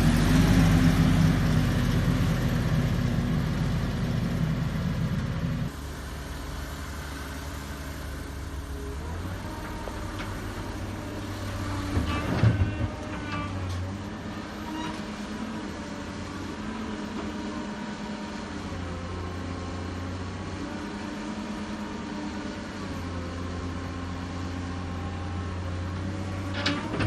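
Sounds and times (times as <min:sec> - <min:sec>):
heavy diesel machinery engine: 0:00.0 - 0:27.0
high squeal: 0:14.6 - 0:15.1.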